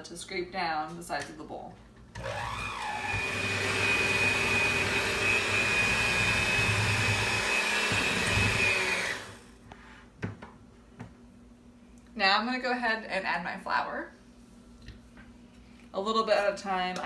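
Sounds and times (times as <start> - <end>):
electric hand mixer whining: 2.2 - 9.6.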